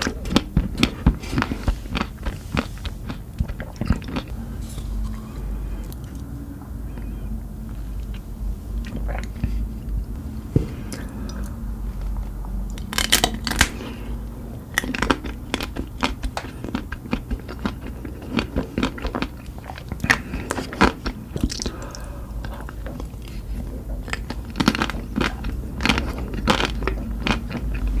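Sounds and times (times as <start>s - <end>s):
person biting and chewing: 0.0s - 6.3s, 12.7s - 14.1s, 14.7s - 28.0s.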